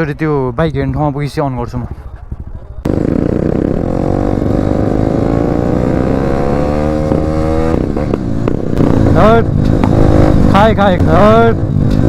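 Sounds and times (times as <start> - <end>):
motorcycle engine accelerating: 2.8 - 12.0.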